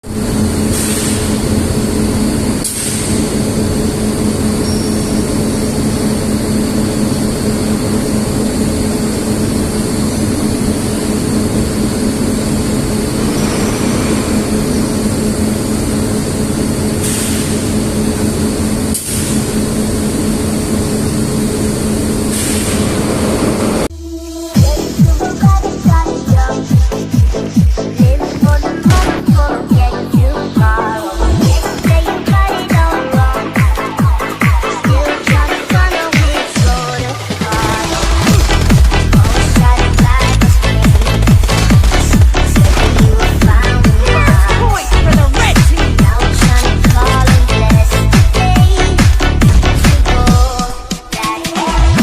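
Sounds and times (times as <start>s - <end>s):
heavy machinery humming: 0.0s - 51.1s.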